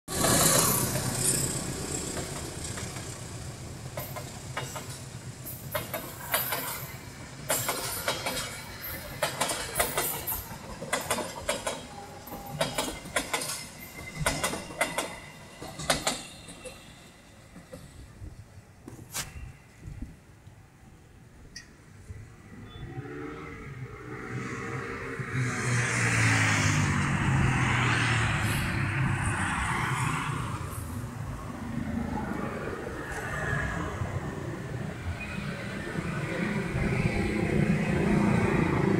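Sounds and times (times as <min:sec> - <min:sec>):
train wheels clattering: 0:00.1 - 0:18.1
locomotive engine hum: 0:00.1 - 0:19.1.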